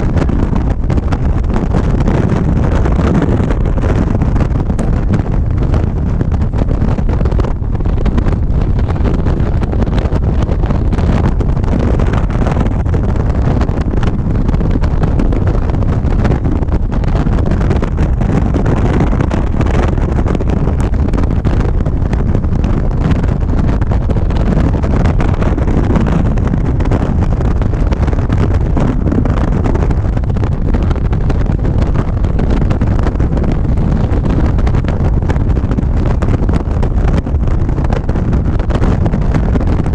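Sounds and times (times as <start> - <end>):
road noise: 0.0 - 39.9
wind buffeting microphone: 0.0 - 39.9.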